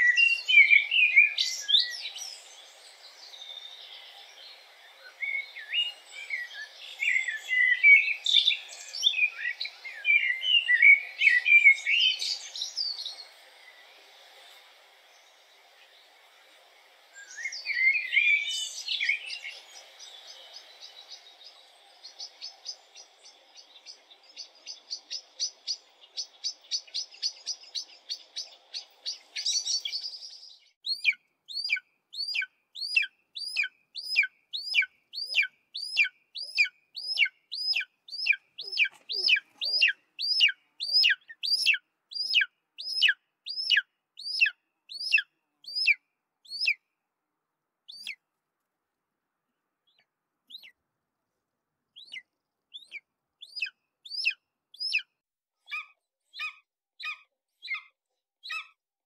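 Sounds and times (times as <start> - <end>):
blackbird calling in fast notes: 30.9 - 46.8, 55.7 - 58.8
eagle yelping calls: 30.9 - 46.8, 52.8 - 55.0, 55.7 - 58.7.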